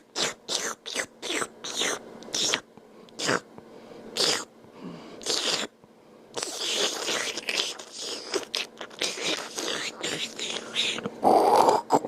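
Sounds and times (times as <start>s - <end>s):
man making wet slurping sounds: 0.1s - 2.6s, 5.2s - 5.7s, 6.4s - 12.0s.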